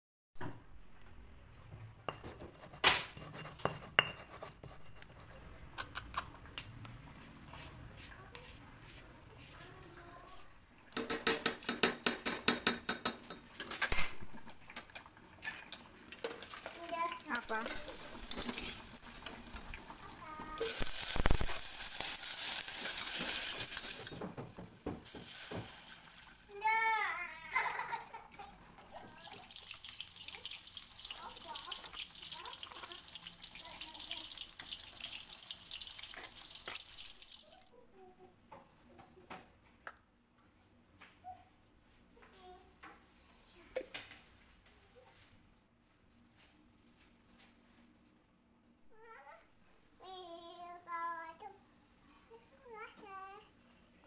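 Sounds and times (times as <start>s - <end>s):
utensils and dishes clinking: 10.9s - 26.5s
utensil knocking against pan: 11.0s - 13.4s
food sizzling in oil: 14.3s - 27.1s, 28.9s - 37.7s.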